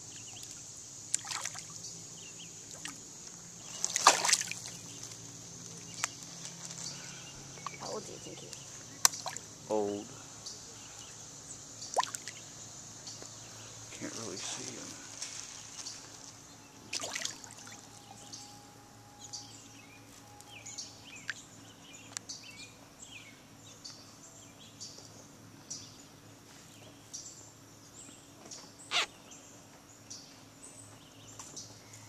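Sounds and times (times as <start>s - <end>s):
faint steady hum: 0.0s - 32.0s
songbirds chirping: 0.0s - 32.0s.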